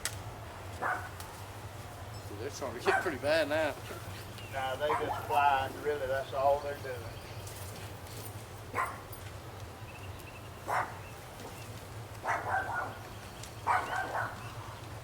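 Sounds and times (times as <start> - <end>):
dog barking: 0.8 - 1.1, 2.8 - 3.2, 4.8 - 5.4, 8.7 - 9.0, 10.6 - 11.0, 12.2 - 13.0, 13.6 - 14.5.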